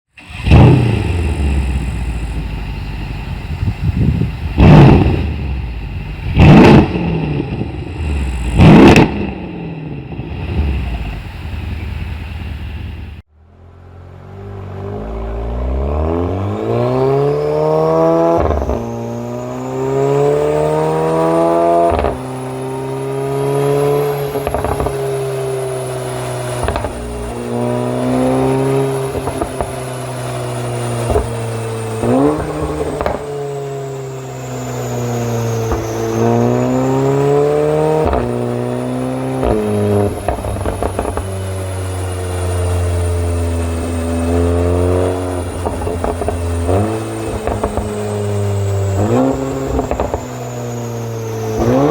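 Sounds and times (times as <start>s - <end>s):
car engine accelerating: 0.2s - 51.9s
exhaust pops and cracks: 24.3s - 25.3s, 26.5s - 27.4s, 29.0s - 30.0s, 31.0s - 31.4s, 32.0s - 33.3s, 39.4s - 41.5s, 45.4s - 48.1s, 49.0s - 50.4s.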